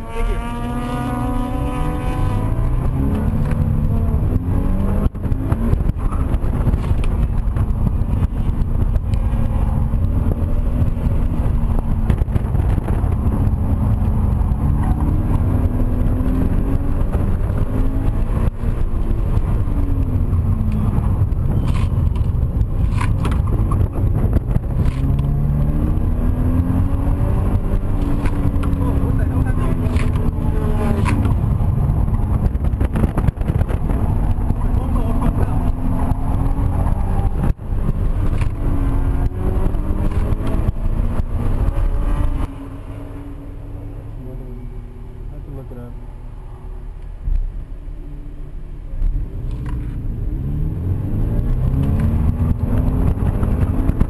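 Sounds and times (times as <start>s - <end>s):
car engine revving: 0.0s - 54.0s
road and tyre noise: 0.0s - 54.0s.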